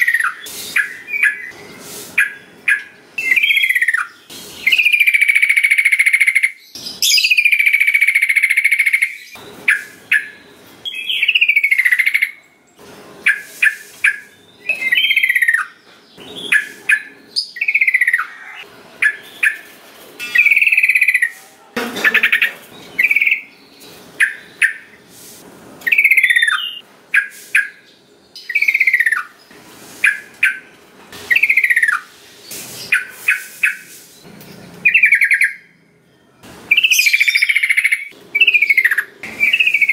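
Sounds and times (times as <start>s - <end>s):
bird singing whistled phrases: 2.2s - 12.4s, 14.1s - 15.7s, 22.9s - 23.5s, 25.9s - 27.8s, 36.7s - 39.9s.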